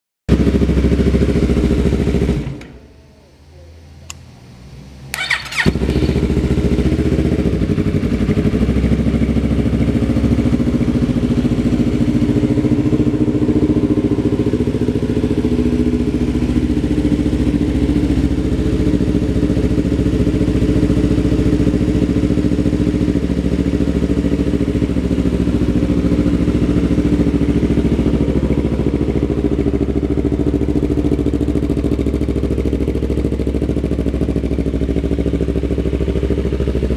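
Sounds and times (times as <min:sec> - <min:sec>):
motorcycle engine starting and idling: 0:00.3 - 0:03.0, 0:04.7 - 0:36.9
click: 0:04.1 - 0:04.3.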